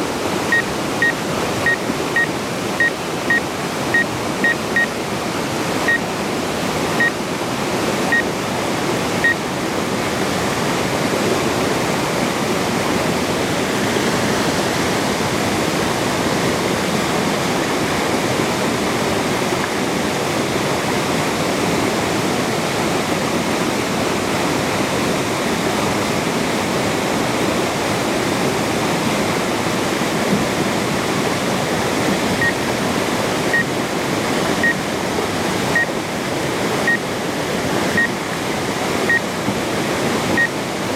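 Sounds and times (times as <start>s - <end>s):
waterfall rushing: 0.0s - 40.9s
short high beeps: 0.5s - 3.4s, 4.0s - 4.9s.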